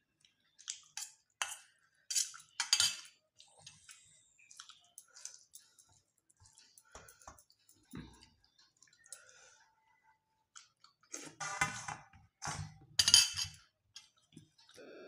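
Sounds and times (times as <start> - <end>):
person chewing food: 3.4 - 9.5, 10.4 - 11.4.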